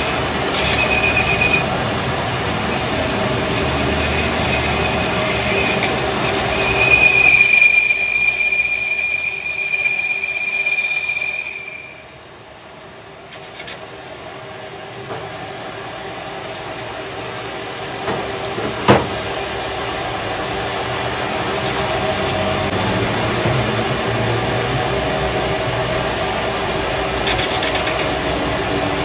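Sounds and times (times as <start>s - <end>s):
machinery metallic squeal: 0.0s - 2.0s, 2.6s - 12.1s.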